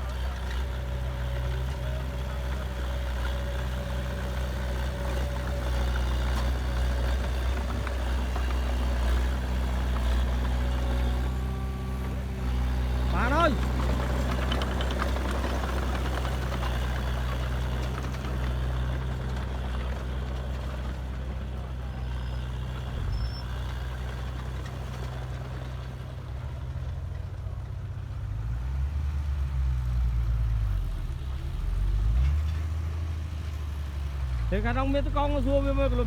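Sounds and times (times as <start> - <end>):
heavy diesel engine revving: 0.0 - 25.8.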